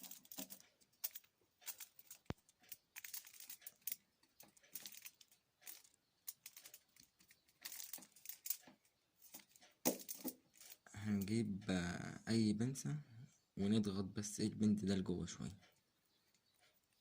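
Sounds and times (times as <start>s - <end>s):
small parts clicking and rustling: 0.0s - 11.4s.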